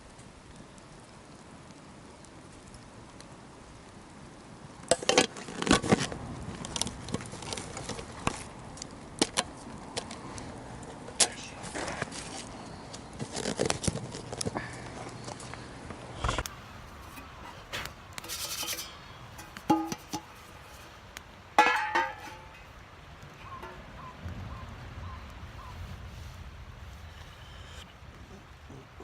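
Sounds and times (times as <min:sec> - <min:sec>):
metal cookware clinking: 0:18.2 - 0:20.6, 0:21.6 - 0:22.7.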